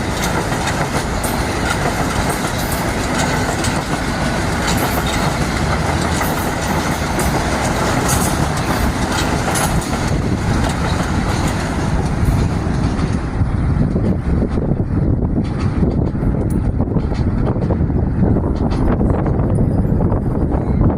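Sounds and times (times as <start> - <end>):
wheel clicks over rail joints: 0.0 - 14.7
train passing: 0.0 - 20.9.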